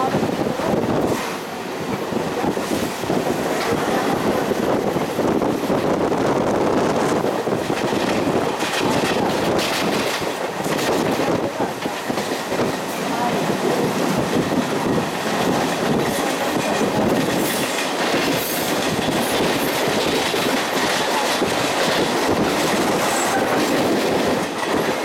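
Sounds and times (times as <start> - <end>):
train carriage rumble and rattle: 0.0 - 25.0
wheels clacking over rail joints: 6.9 - 25.0.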